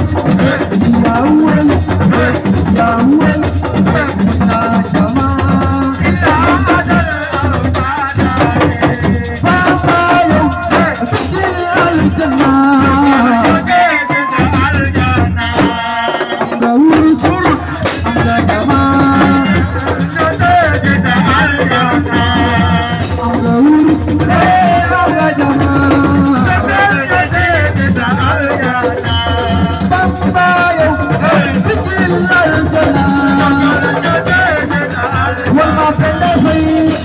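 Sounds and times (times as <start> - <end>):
shaker rattling: 17.2 - 37.0.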